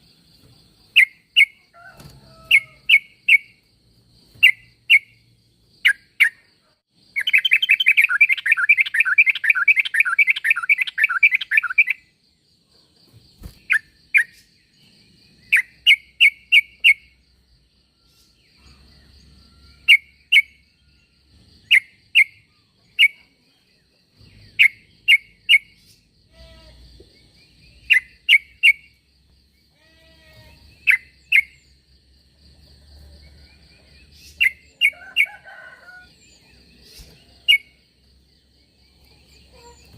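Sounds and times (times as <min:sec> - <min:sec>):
bird chattering calls: 0:07.2 - 0:12.0.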